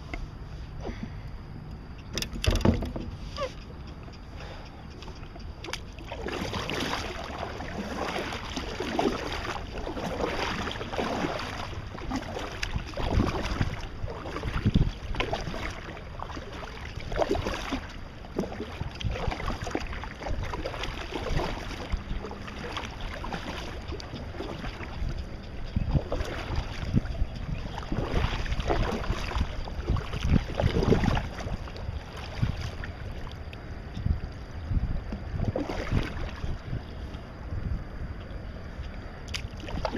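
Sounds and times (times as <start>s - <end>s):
wind rumbling on microphone: 0.0s - 39.9s
paddle splashing in water: 5.1s - 33.6s, 35.1s - 36.8s, 39.3s - 39.9s.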